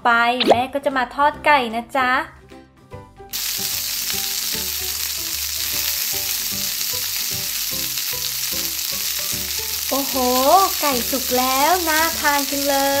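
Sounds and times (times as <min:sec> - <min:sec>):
light background music: 0:00.0 - 0:13.0
frying sizzle: 0:03.3 - 0:13.0.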